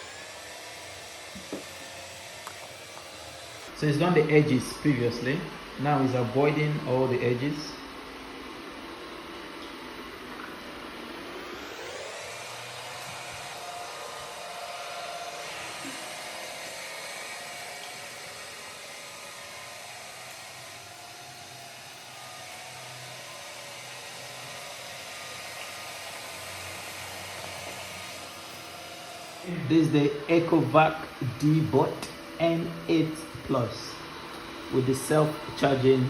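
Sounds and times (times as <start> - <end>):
robot vacuum whirring: 0.0 - 6.5, 7.2 - 36.0.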